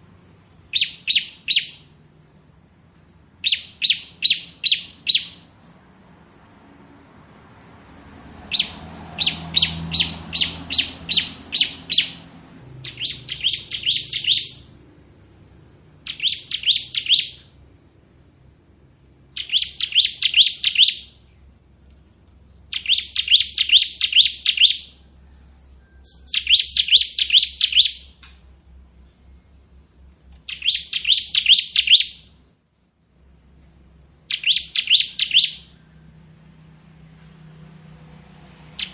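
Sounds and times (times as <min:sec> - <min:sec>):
bird song quick high notes: 0:12.8 - 0:14.8.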